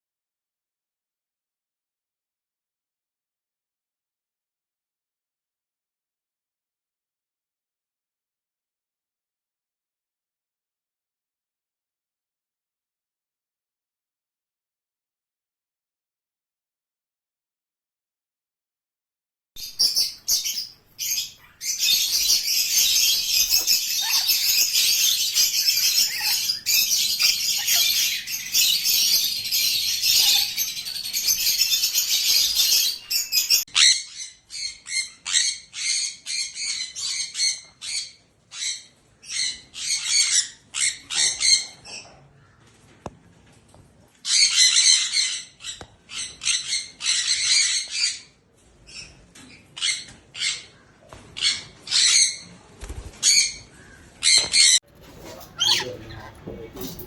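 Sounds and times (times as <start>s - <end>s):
parrots chattering and chirping: 19.6s - 42.2s, 44.3s - 50.8s, 53.2s - 57.0s.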